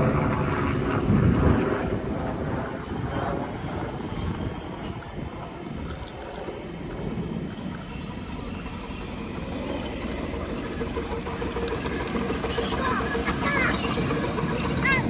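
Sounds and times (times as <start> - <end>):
miniature train rumbling: 0.0 - 15.0.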